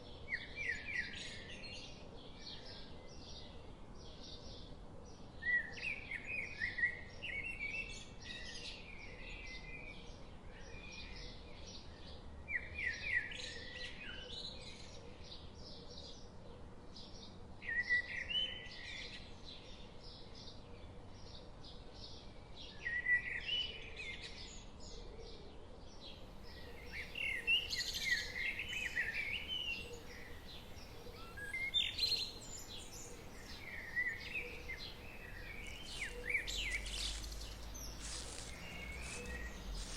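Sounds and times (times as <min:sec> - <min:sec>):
forest stream rushing: 0:26.4 - 0:39.9
bird repeating song phrase: 0:26.5 - 0:39.9
high bird chirps: 0:26.5 - 0:39.9.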